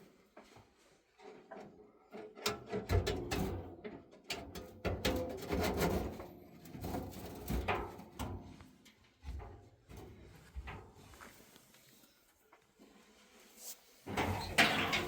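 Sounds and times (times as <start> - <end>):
clatter of things being handled: 0.3 - 11.4, 14.1 - 15.0.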